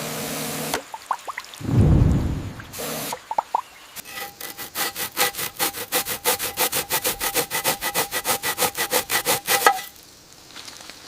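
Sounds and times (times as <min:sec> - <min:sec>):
hand saw cutting wood: 0:04.0 - 0:09.9.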